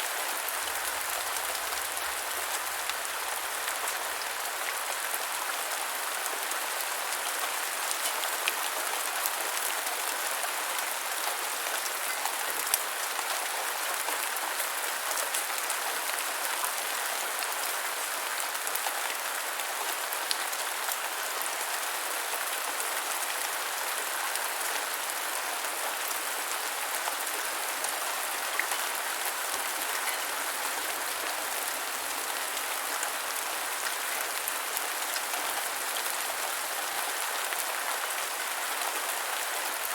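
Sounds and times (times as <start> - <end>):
gentle rain hissing: 0.0 - 9.7, 26.4 - 37.8.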